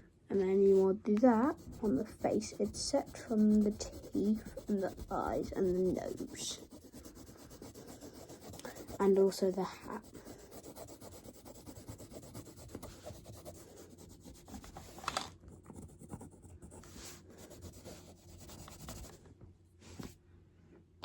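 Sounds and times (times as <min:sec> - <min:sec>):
pencil scratching on paper: 0:00.4 - 0:19.2.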